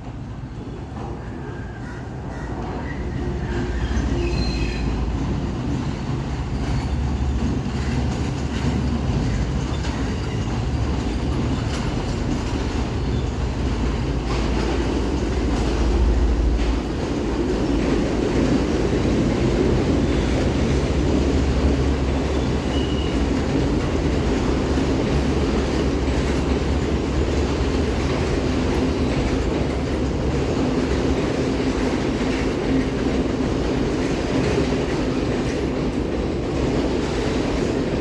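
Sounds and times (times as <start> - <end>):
train rumble: 0.0 - 38.0
wheels clattering over rail joints: 5.0 - 38.0
high wheel squeal: 22.2 - 23.2.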